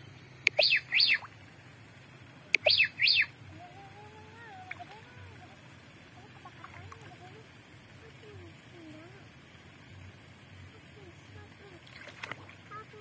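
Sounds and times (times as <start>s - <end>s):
bird calling: 0.4s - 1.3s, 2.6s - 3.4s.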